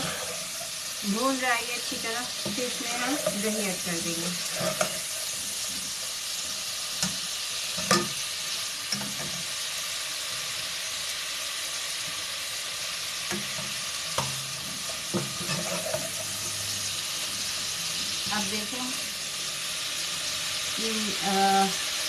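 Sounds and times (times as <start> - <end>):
food sizzling in hot oil: 0.0 - 22.0
spoon knocking against pan: 7.8 - 8.2, 15.1 - 16.0.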